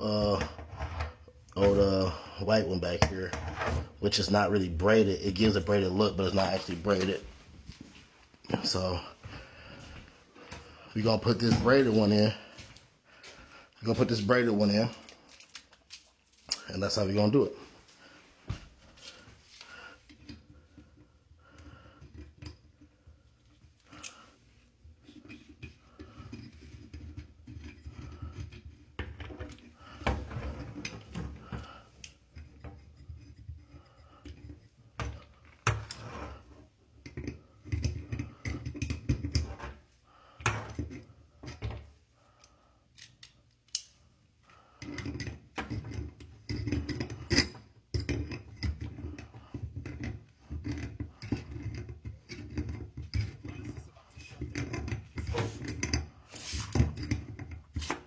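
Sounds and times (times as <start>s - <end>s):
tools and fittings clicking: 42.4s - 44.0s.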